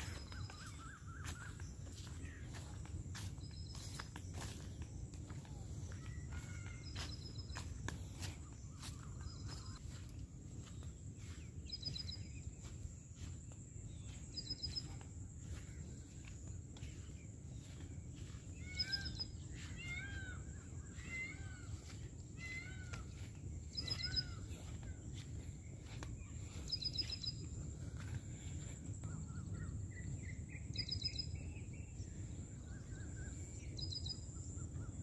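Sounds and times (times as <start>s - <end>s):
steady low rumble: 0.0s - 19.7s
small birds trilling and chirping: 0.0s - 35.0s.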